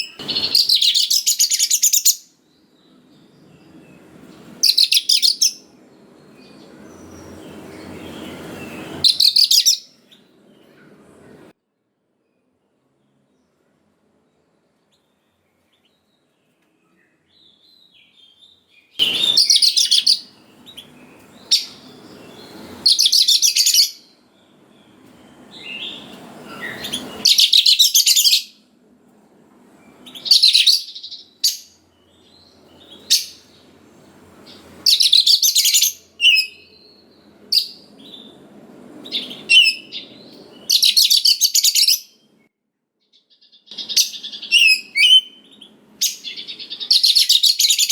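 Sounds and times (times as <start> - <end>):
bird song chattering phrases: 0.0 - 3.0, 3.6 - 5.7, 6.4 - 10.8, 17.4 - 28.5, 30.0 - 33.8, 34.4 - 38.4, 39.1 - 42.3, 43.2 - 47.9
soft bird calls: 43.1 - 47.9.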